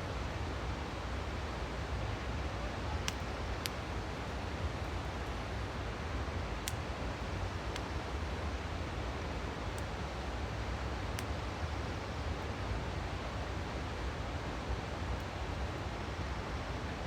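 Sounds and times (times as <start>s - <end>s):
campfire pops and crackles: 3.0s - 3.9s, 6.6s - 6.9s, 7.6s - 8.0s.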